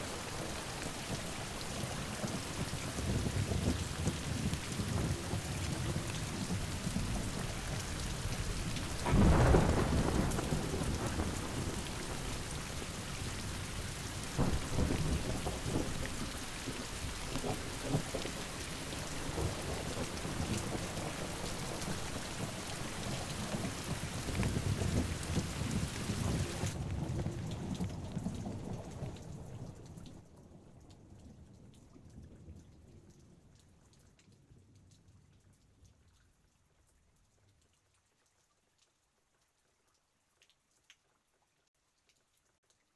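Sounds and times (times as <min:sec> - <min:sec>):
heavy rain pouring: 0:00.0 - 0:29.7
rolling thunder: 0:00.3 - 0:29.2
loud thunderclap: 0:02.5 - 0:13.1, 0:14.3 - 0:18.4.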